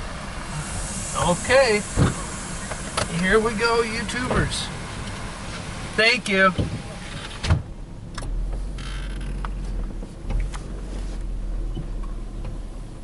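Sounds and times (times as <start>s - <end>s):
car engine idling: 0.0s - 13.0s
sharp thump: 1.9s - 3.1s.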